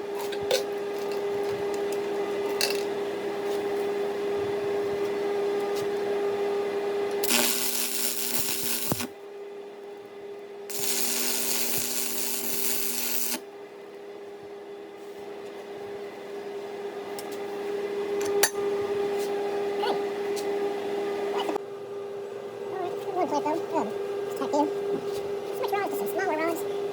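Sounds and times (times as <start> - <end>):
welding machine hum: 7.1 - 9.2, 10.7 - 13.4
welding arc crackling: 7.2 - 9.1, 10.7 - 13.4.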